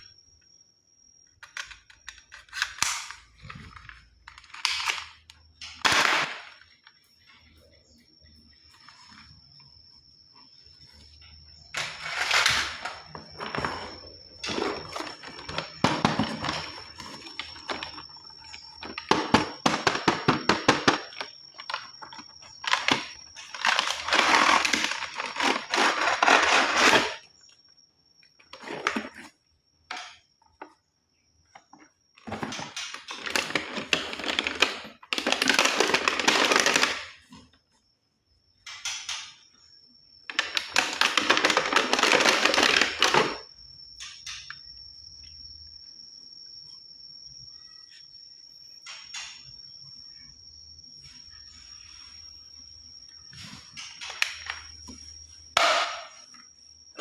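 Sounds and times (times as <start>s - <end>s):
toy guns clicking and clattering: 4.3s - 6.6s.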